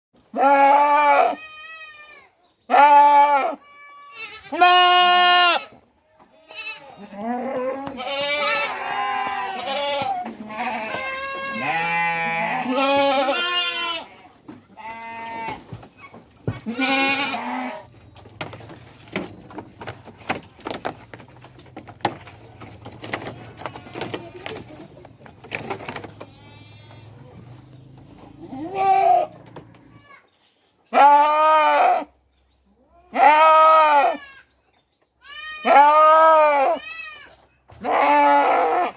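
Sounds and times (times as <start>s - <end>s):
goats bleating: 0.3s - 15.8s, 16.5s - 17.9s, 23.0s - 25.0s, 26.1s - 27.5s, 28.2s - 30.3s, 30.9s - 32.2s, 32.9s - 34.5s, 35.2s - 38.9s.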